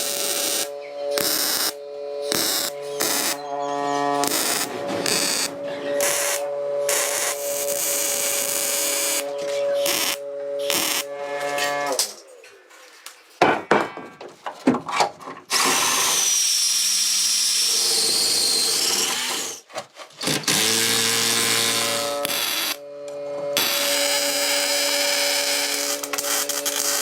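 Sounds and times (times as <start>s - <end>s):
power tools running: 0.0s - 12.5s, 20.3s - 27.0s
high wavering whine: 0.0s - 13.0s, 21.0s - 27.0s
scraping: 0.0s - 15.4s
knocking: 13.4s - 15.4s.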